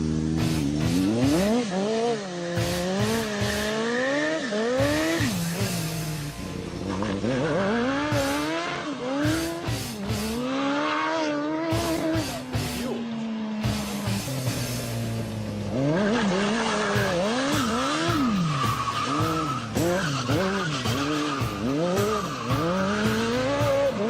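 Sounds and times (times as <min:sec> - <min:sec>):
go-kart engine revving: 0:00.0 - 0:24.0.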